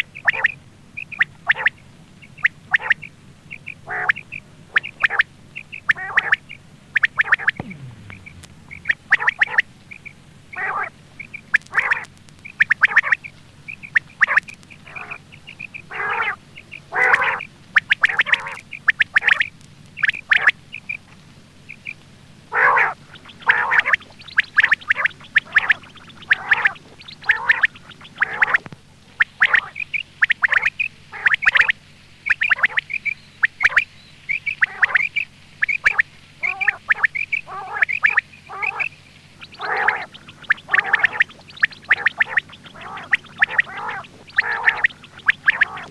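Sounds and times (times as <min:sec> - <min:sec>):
quail calling: 0:00.0 - 0:45.9.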